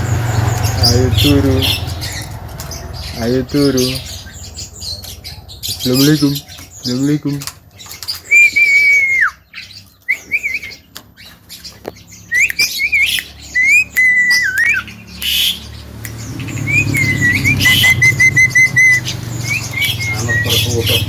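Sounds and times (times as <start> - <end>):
low rumble: 0.0 - 6.0
myna whistling: 8.2 - 10.9, 12.3 - 21.0.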